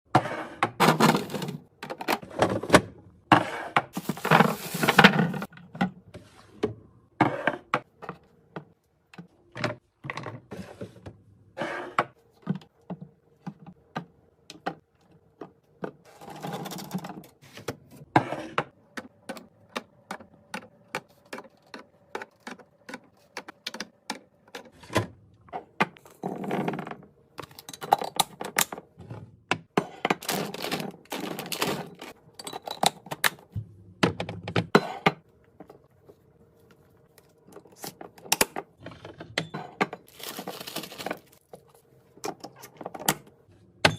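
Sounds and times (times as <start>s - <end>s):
handling noises: 39.8s - 43.3s.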